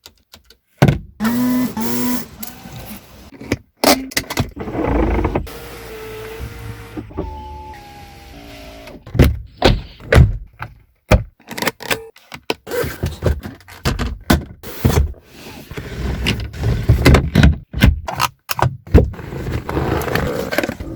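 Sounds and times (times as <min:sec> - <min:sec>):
car doors thunking: 0:04.5 - 0:10.4.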